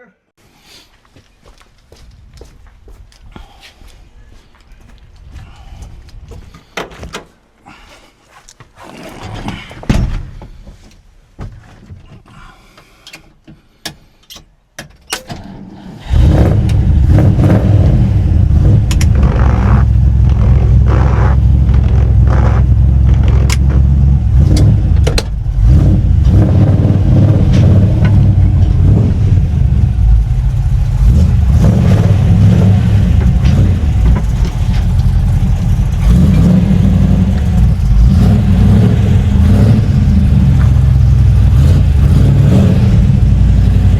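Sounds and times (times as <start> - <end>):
car engine running: 16.1 - 43.9.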